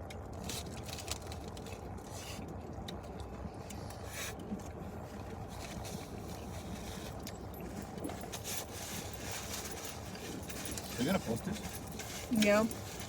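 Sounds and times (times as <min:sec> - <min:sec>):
rustling: 0:07.8 - 0:13.0.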